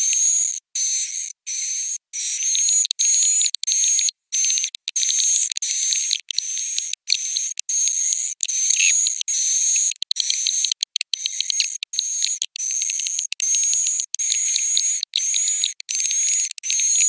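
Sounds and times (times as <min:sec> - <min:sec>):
swiftlets twittering: 0:03.8 - 0:17.0.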